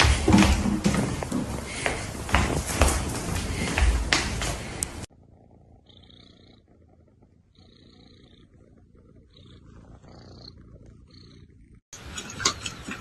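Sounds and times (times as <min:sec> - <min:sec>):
cat purring: 0:04.7 - 0:13.0.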